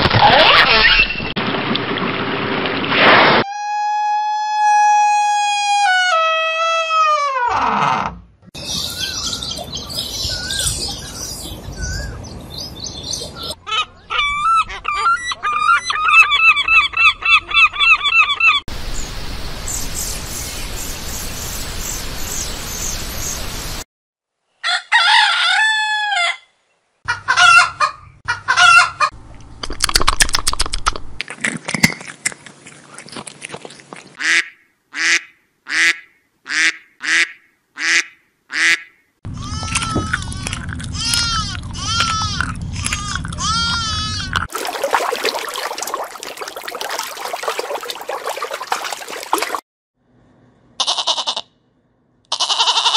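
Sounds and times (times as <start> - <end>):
birds chirping: 8.6 - 23.8.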